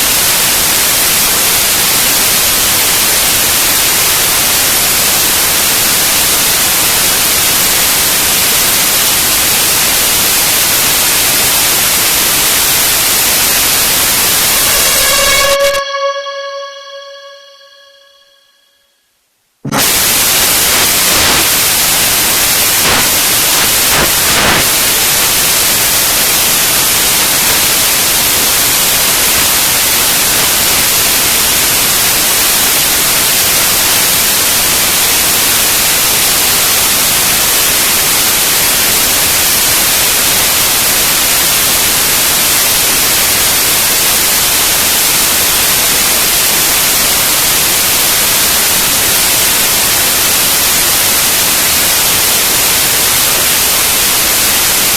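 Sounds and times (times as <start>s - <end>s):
loud static hiss: 0.0s - 18.0s, 19.4s - 54.9s.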